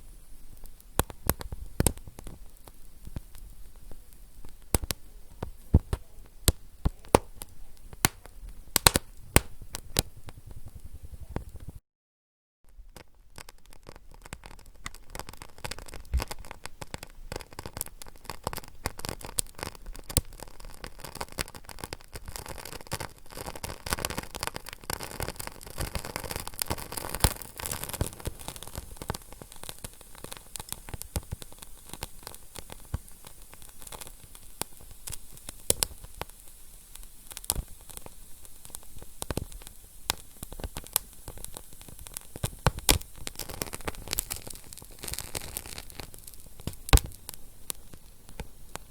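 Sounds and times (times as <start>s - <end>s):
fire crackling: 0.0s - 11.8s, 12.7s - 48.9s
fire pops: 0.0s - 11.8s, 12.7s - 48.9s.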